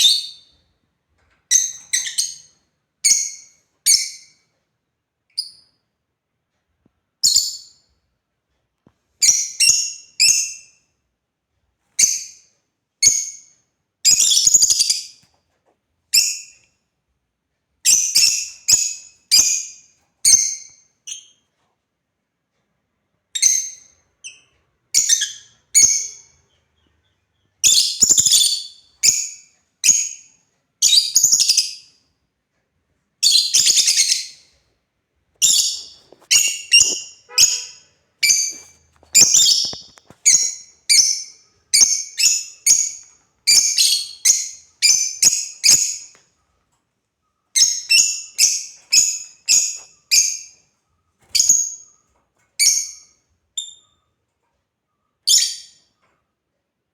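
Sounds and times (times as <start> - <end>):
lovebirds chirping shrill calls: 14.1 - 15.1, 23.4 - 31.9, 33.2 - 34.5, 35.4 - 46.2, 47.5 - 50.6, 51.3 - 54.0, 55.2 - 56.0.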